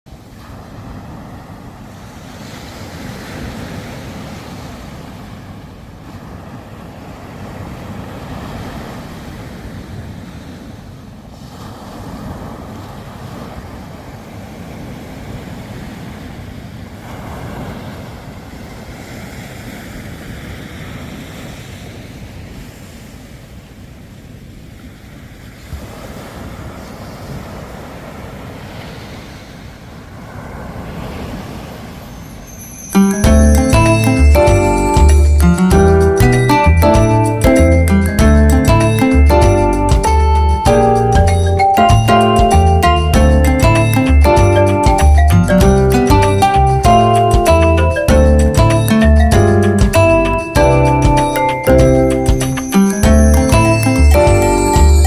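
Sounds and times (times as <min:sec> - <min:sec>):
sea waves breaking on shore: 0:00.1 - 0:33.2.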